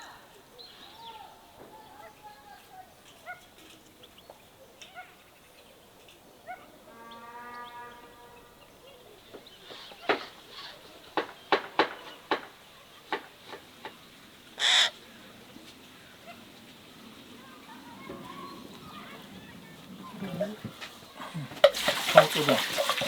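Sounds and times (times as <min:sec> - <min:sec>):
sharp knocks: 0:11.2 - 0:14.0.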